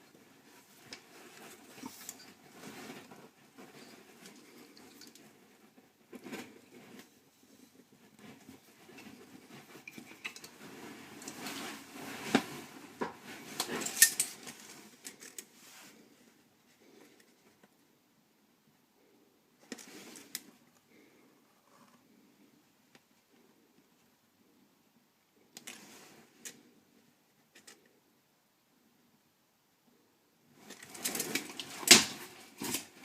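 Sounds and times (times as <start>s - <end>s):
hard objects clattering and clinking: 8.8s - 15.4s.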